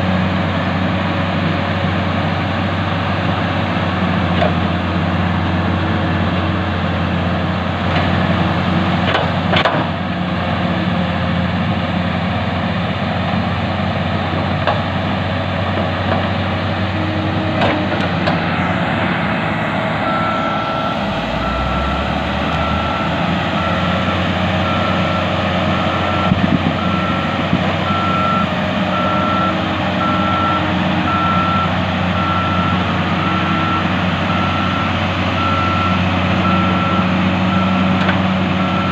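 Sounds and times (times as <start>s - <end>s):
heavy diesel engines running: 0.0s - 38.9s
reversing alarm beeping: 19.3s - 38.0s, 38.6s - 38.9s.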